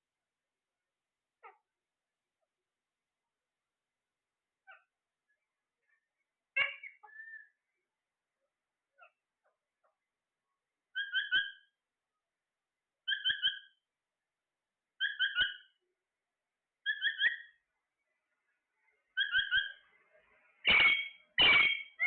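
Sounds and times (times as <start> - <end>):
parrot whistling: 20.7 - 22.0.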